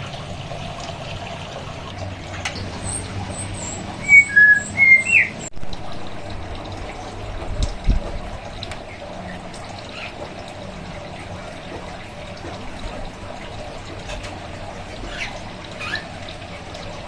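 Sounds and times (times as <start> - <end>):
running water hissing: 0.0 - 5.5
bird whistling clear notes: 2.9 - 5.5.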